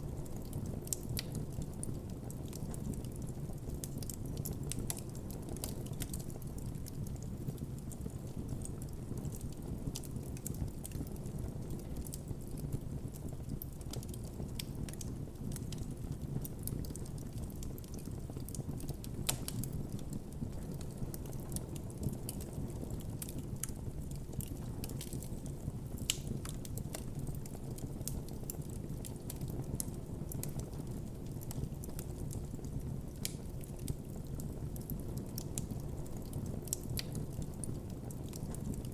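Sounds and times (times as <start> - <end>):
campfire flames rumbling: 0.0 - 38.9
fire crackling and popping: 0.0 - 38.9.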